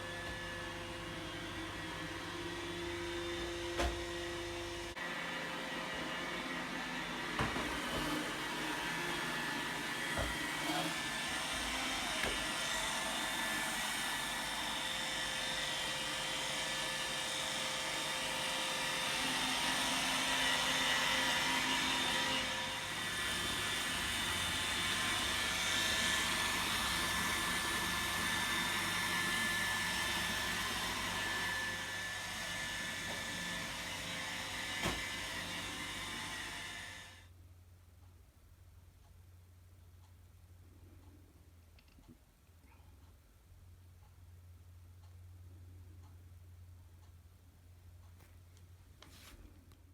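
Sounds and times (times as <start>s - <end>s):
robot vacuum whirring: 0.1s - 37.2s.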